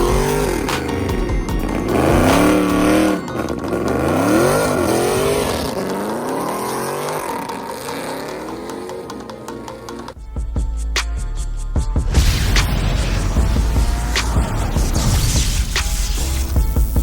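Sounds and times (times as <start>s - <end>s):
car engine revving: 0.0s - 10.2s, 12.2s - 17.0s.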